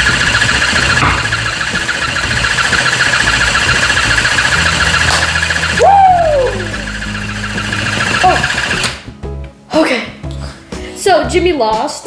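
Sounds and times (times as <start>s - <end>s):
sliding tone falling in pitch: 0.0s - 8.9s
toy dog motor buzzing: 0.0s - 9.0s.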